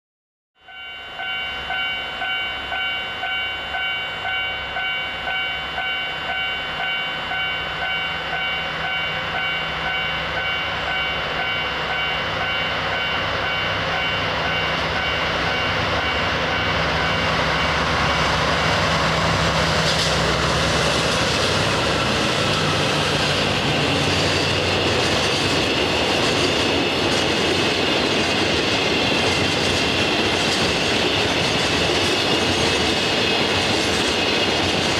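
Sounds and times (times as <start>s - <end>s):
ringing tone: 0.6s - 18.3s
train passing on rails: 0.6s - 34.9s.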